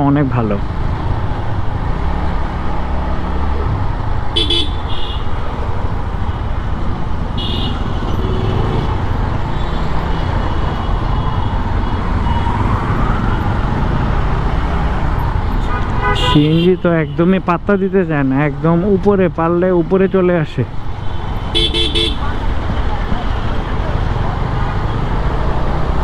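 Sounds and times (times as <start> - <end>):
motorcycle engine and road rumble: 0.0 - 26.0
vehicle horn toots: 4.4 - 5.4, 7.4 - 8.6, 15.6 - 17.2, 21.5 - 22.4.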